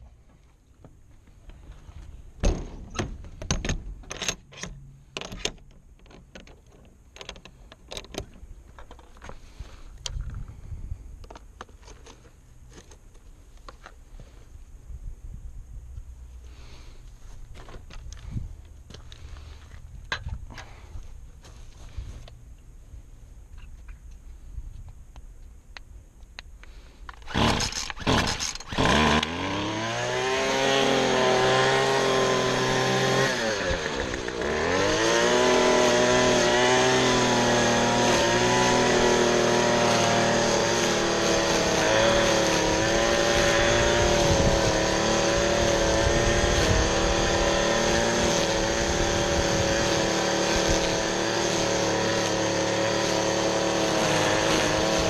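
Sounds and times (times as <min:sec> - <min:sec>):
small gasoline engine running: 0:27.2 - 0:55.0.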